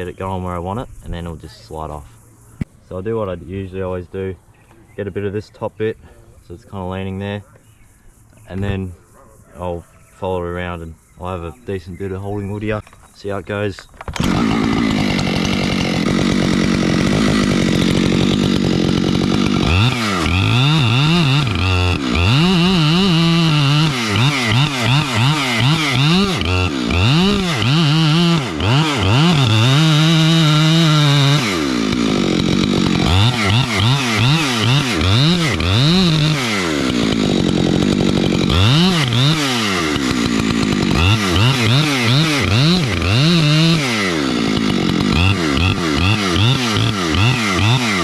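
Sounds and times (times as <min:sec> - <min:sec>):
chainsaw cutting wood: 0:14.0 - 0:48.0.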